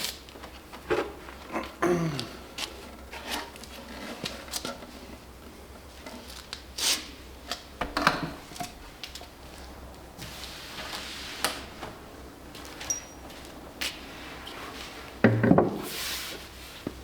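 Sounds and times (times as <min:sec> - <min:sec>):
wood knocking and rubbing: 0:15.2 - 0:16.0.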